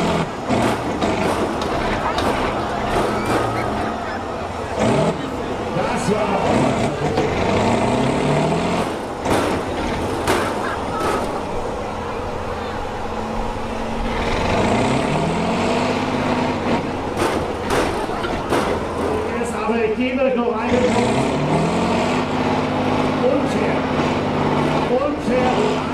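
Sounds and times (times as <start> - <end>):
tractor diesel engine revving: 0.0 - 25.9.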